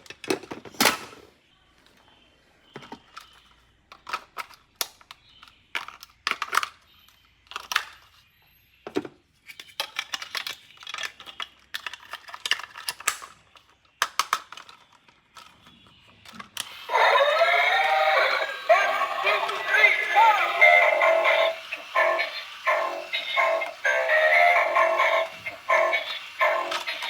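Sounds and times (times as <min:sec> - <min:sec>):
plastic toys clicking: 0:02.8 - 0:08.2, 0:09.5 - 0:27.0
music with singing: 0:16.8 - 0:27.0.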